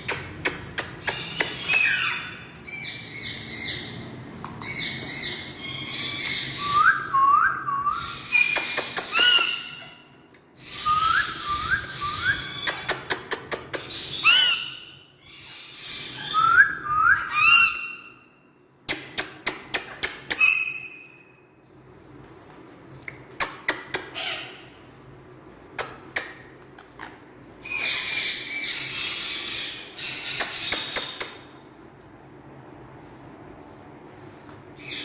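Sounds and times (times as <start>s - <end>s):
parrot squawks: 1.0s - 3.9s, 13.9s - 18.3s, 24.1s - 24.7s, 27.0s - 31.2s
parrot whistled calls: 4.8s - 9.9s, 10.6s - 12.9s, 14.1s - 18.3s, 20.4s - 21.3s
parrot rapid clicks: 12.6s - 13.9s.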